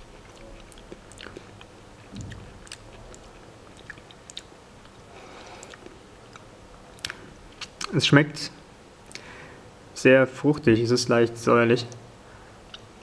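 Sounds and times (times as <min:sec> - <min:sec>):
person chewing soft fruit: 0:00.0 - 0:08.0, 0:12.6 - 0:13.0.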